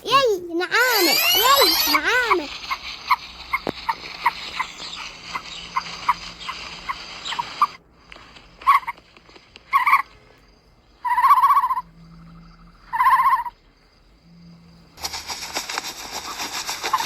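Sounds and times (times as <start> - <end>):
bird calling: 0.0 - 9.1, 11.0 - 13.6
loud rushing hiss: 0.8 - 8.4, 15.0 - 17.0.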